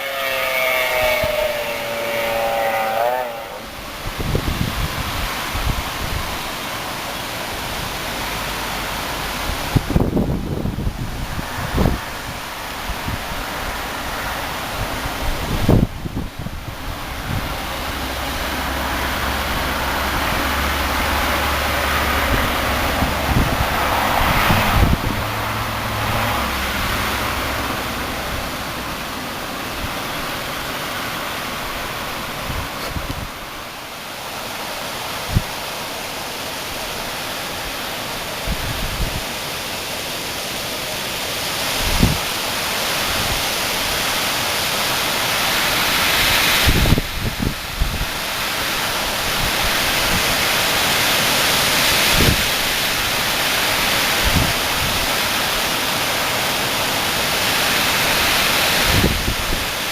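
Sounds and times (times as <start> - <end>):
wind thumping microphone: 0.0 - 6.6, 9.2 - 30.6, 31.7 - 33.5, 46.0 - 48.4, 54.0 - 55.3, 58.8 - 59.8
strong gusty wind: 0.0 - 59.9.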